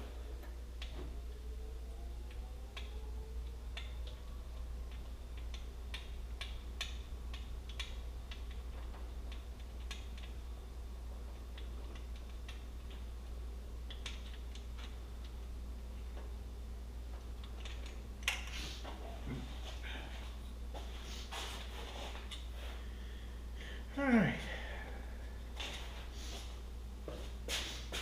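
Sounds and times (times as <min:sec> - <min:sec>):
steady low hum: 0:00.0 - 0:28.0
light clicks and ticks: 0:02.2 - 0:10.4.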